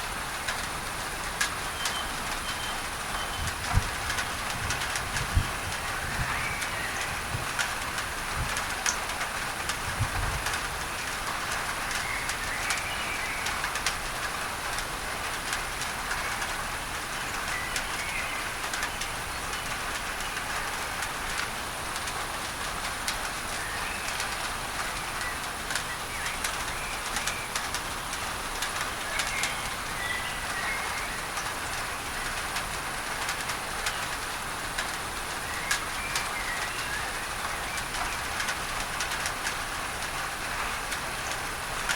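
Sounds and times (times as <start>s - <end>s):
rain on a tin roof: 0.0s - 41.9s.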